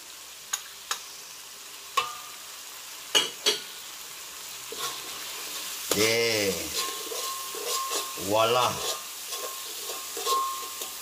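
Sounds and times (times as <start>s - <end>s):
paste sizzling in hot oil: 0.0s - 11.0s
man's voice: 5.9s - 6.8s, 8.2s - 8.9s.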